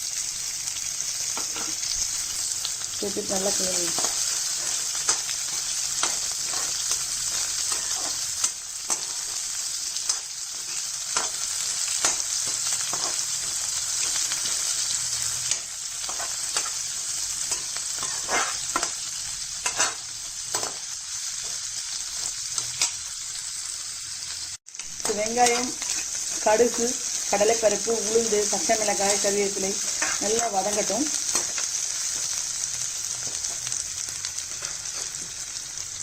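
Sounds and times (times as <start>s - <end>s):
onions sizzling in hot oil: 0.0s - 36.0s
spatula scraping pan: 17.4s - 19.0s, 19.6s - 20.8s.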